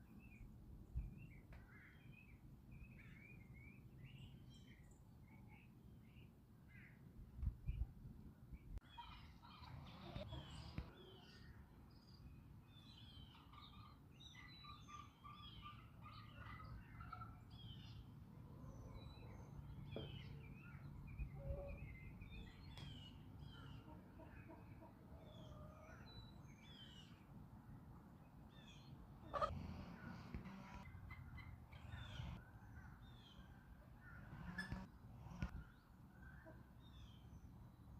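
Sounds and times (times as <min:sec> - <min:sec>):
small birds chirping: 0:08.6 - 0:27.4, 0:28.2 - 0:37.9
chickens calling: 0:08.8 - 0:11.4, 0:13.2 - 0:26.1, 0:29.2 - 0:35.6.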